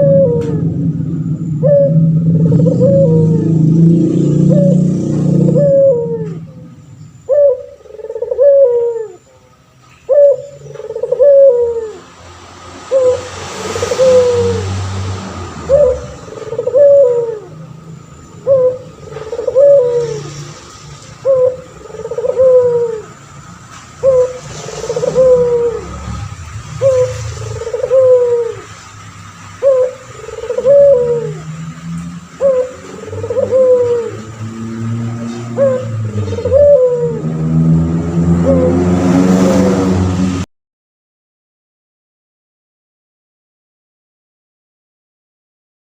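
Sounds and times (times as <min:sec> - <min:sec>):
dove cooing: 0:00.0 - 0:09.5, 0:10.1 - 0:12.2, 0:12.9 - 0:14.9, 0:15.5 - 0:23.3, 0:24.0 - 0:28.8, 0:29.5 - 0:39.0.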